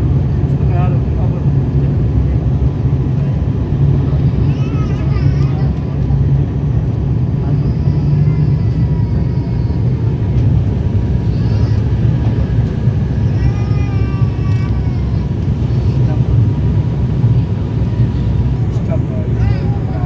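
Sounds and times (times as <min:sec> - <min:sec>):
turboprop engines droning: 0:00.0 - 0:20.0.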